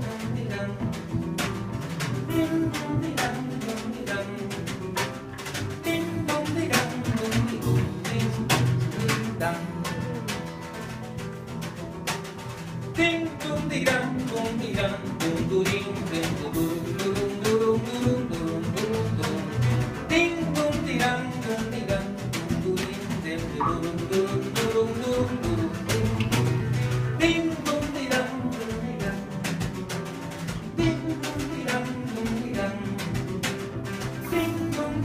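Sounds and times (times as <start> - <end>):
live band music: 0.0 - 35.0
plucked acoustic guitar: 0.0 - 35.0
percussive strikes: 22.3 - 24.8.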